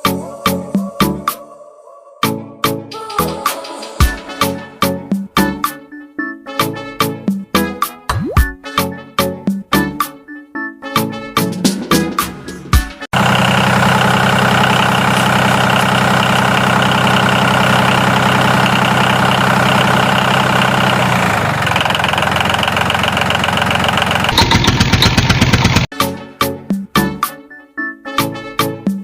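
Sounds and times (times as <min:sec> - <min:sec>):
tractor engine running: 0:13.1 - 0:25.9.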